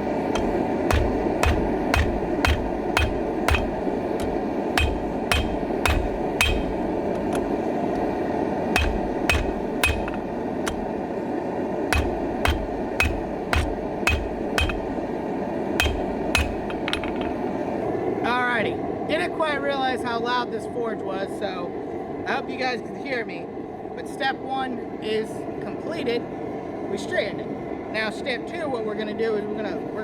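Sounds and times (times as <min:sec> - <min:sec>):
loud forge roaring: 0:00.0 - 0:08.1, 0:08.8 - 0:11.0, 0:11.9 - 0:15.1, 0:15.8 - 0:17.0
hammer striking horseshoe on anvil: 0:00.0 - 0:11.1, 0:11.9 - 0:17.4.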